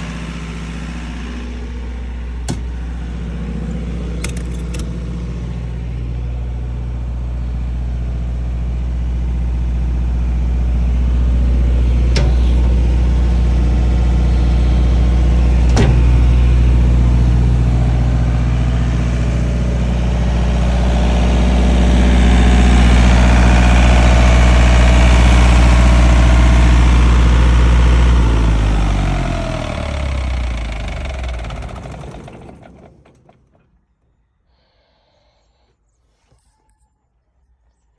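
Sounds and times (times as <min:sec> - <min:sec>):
diesel generator engine running: 0:00.0 - 0:33.9
engine spinning down: 0:00.0 - 0:34.0
sharp clicks: 0:04.2 - 0:05.1.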